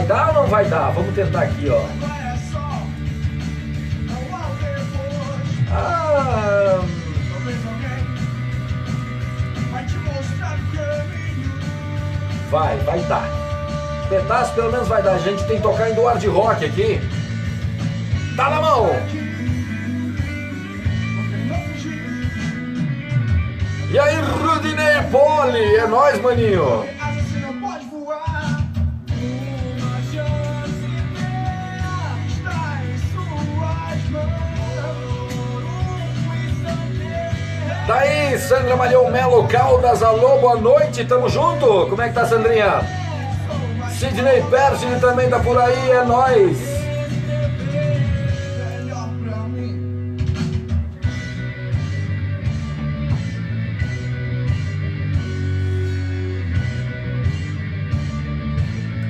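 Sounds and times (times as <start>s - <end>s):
steady bass line: 0.0s - 27.6s, 28.6s - 59.0s
rock music with electric guitar: 0.0s - 59.0s
person singing: 10.4s - 16.4s, 23.9s - 40.2s, 41.0s - 49.8s.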